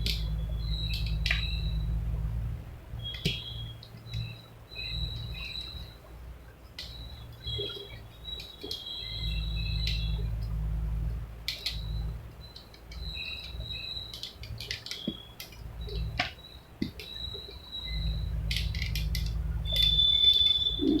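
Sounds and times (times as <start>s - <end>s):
low rumble: 0.0s - 8.4s, 9.0s - 21.0s
small birds chirping: 0.0s - 21.0s
sharp clicks: 11.5s - 20.0s.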